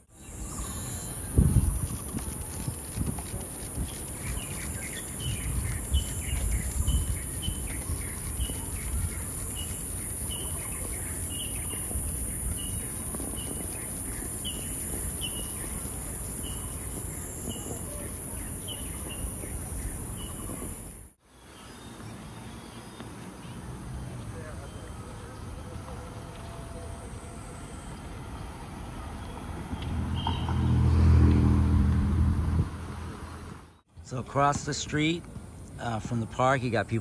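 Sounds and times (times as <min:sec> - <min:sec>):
high-pitched hiss: 0:00.1 - 0:21.1
birds chirping: 0:00.2 - 0:23.6.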